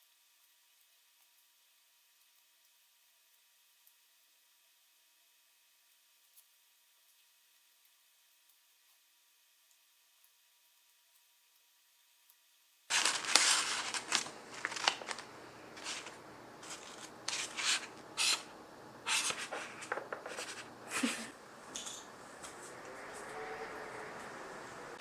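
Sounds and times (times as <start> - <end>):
rustling and clicking of objects: 12.9 - 18.5, 19.1 - 22.8.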